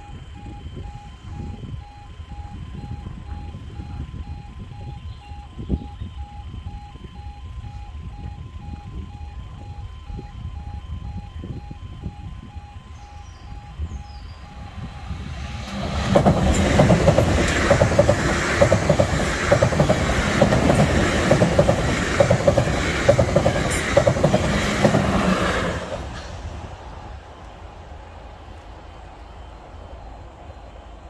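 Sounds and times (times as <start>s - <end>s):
train wheels clattering: 15.3s - 26.5s.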